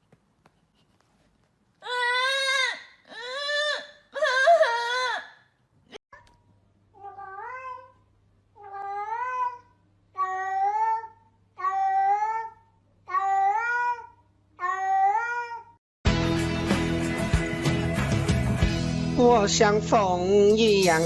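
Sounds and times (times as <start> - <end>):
cat meowing: 7.0 - 8.0.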